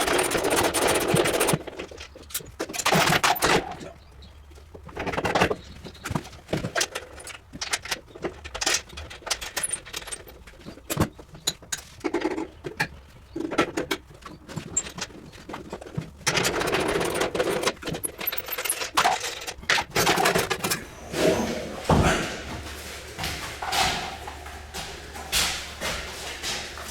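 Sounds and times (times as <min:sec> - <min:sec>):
rough rattling and scraping: 0:13.3 - 0:26.9
metal clinking and knocking: 0:16.3 - 0:22.2.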